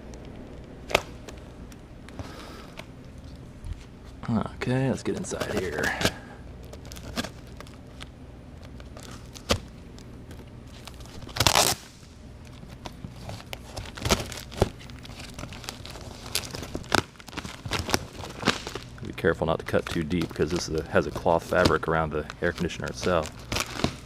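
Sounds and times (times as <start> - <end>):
cardboard ripping: 10.8 - 12.0, 13.2 - 18.8, 19.8 - 24.0.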